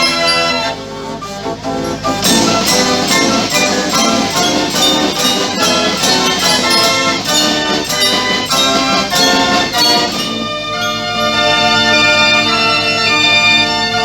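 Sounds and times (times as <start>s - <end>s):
fairground organ music: 0.0s - 14.0s
steady drum beat: 2.0s - 11.5s.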